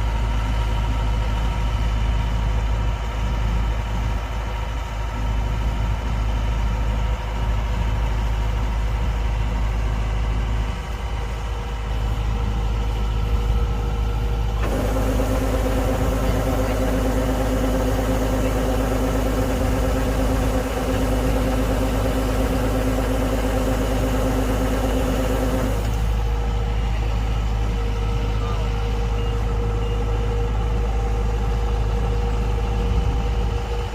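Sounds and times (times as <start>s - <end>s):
combine harvester engine humming: 0.0s - 33.9s
high machine whine with hiss: 14.6s - 26.2s.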